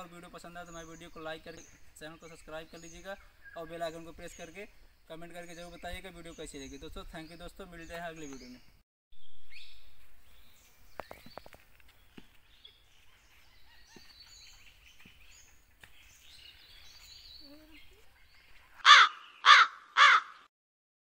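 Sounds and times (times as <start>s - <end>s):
faint bird chirps: 0.6s - 19.6s
crow cawing: 18.8s - 20.5s.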